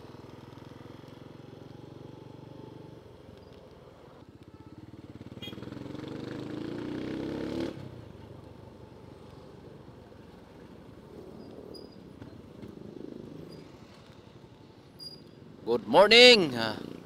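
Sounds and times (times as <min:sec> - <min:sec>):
motorcycle engine revving: 0:05.1 - 0:08.0.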